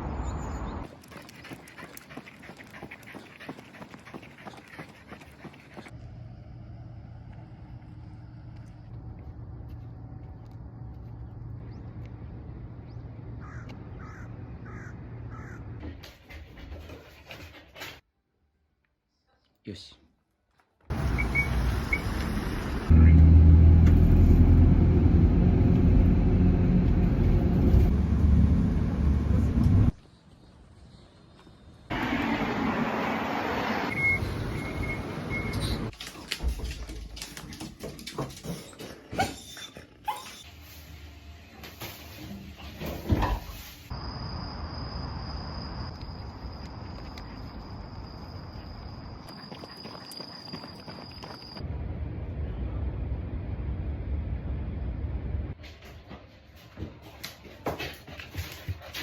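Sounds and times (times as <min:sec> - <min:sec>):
crow cawing: 0:13.4 - 0:15.6
dog whining: 0:38.5 - 0:40.5
steady low rumble: 0:51.6 - 0:55.6.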